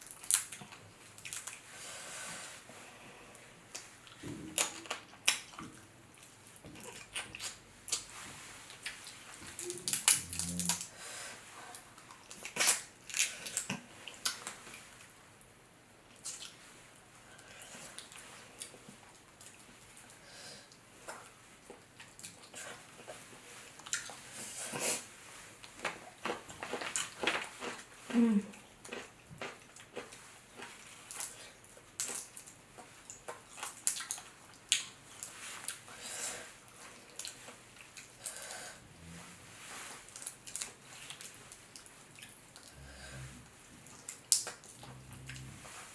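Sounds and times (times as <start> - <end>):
wet eating sounds: 3.7 - 10.9, 11.7 - 15.0, 17.4 - 38.7, 39.6 - 45.9.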